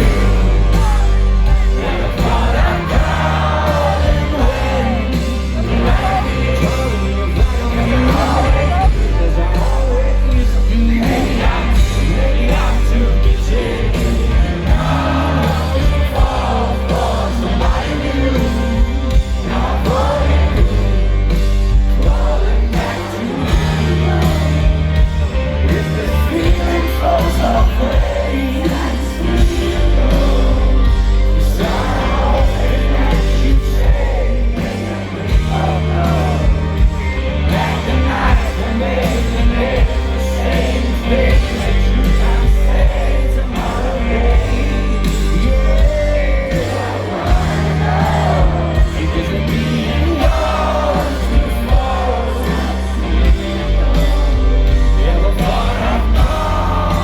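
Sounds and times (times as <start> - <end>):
audience yelling: 0.0 - 57.0
drums: 0.0 - 57.0
heavy bass riff: 0.0 - 57.0
live rock band: 0.0 - 57.0.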